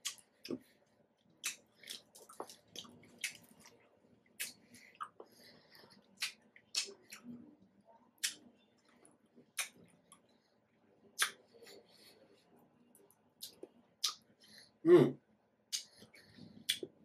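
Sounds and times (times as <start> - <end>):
person humming: 14.8 - 15.2.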